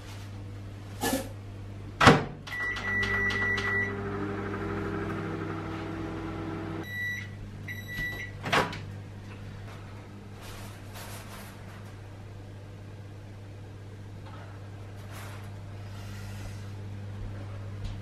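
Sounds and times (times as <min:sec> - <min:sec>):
microwave oven humming: 0:00.0 - 0:18.0
keypad beeps: 0:02.5 - 0:03.9, 0:06.8 - 0:08.3.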